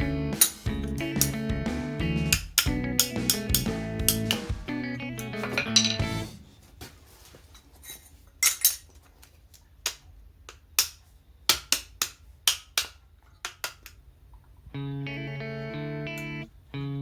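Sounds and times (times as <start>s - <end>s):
metal tools clinking and knocking: 5.2s - 6.3s, 7.6s - 9.1s.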